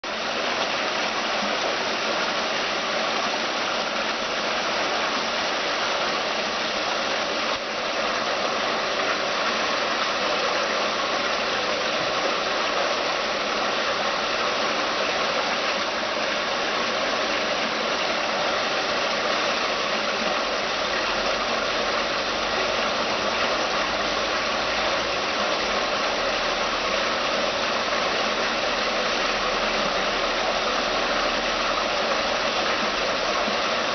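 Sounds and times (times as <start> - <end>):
fountain water splashing: 0.0 - 33.9.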